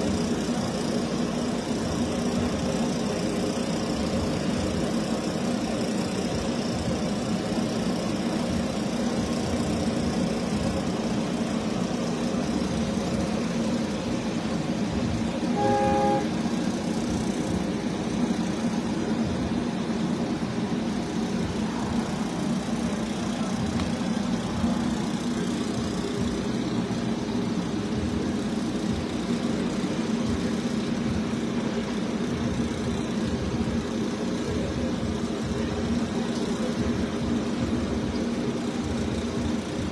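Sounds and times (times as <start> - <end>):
vehicle engine idling: 0.0 - 39.9
horn toot: 15.5 - 16.4.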